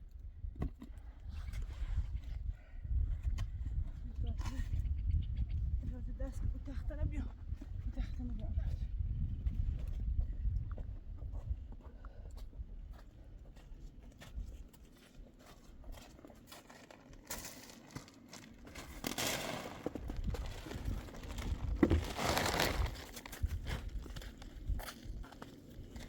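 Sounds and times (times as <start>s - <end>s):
rustling and crinkling: 13.0s - 26.0s.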